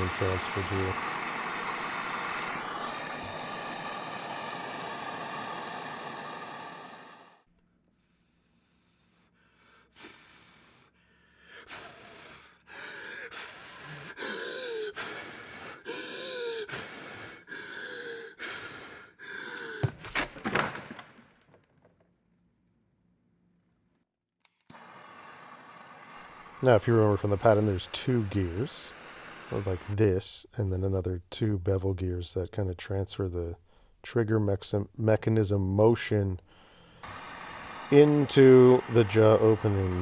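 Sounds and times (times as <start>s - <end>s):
gas torch hissing: 0.0s - 7.4s, 24.7s - 30.2s, 36.8s - 40.0s.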